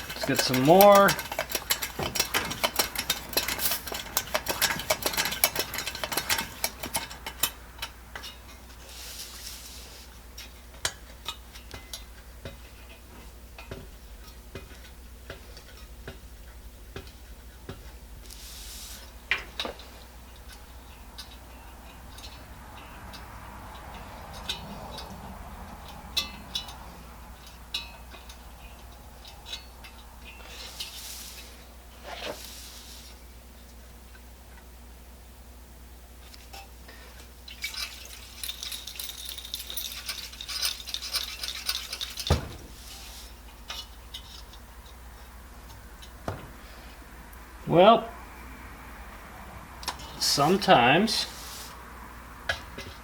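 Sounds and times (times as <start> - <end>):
small metal clicks and rattles: 0.0 - 8.7, 19.3 - 31.6, 36.3 - 46.2.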